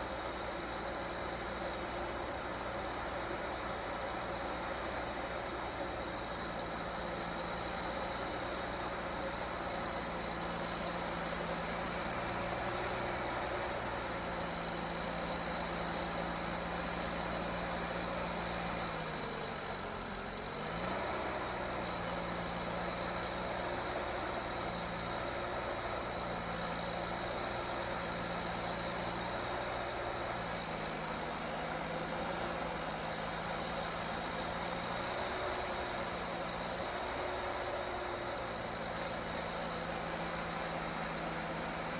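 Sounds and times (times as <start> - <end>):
heavy vehicle engine running: 0.0 - 41.9.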